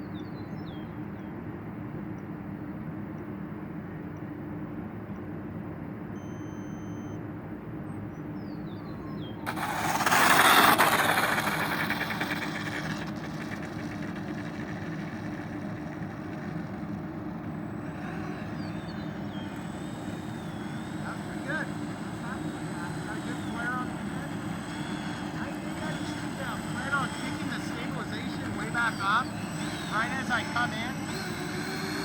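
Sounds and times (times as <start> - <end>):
steady background hum: 0.0 - 32.0
model jet whooshing past: 9.5 - 16.6.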